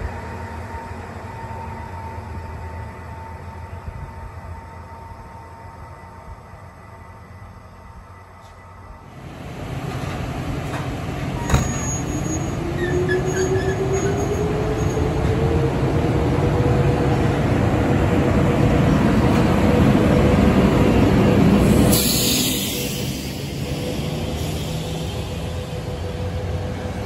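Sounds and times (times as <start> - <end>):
train wheels rumbling on rail: 6.1 - 27.0.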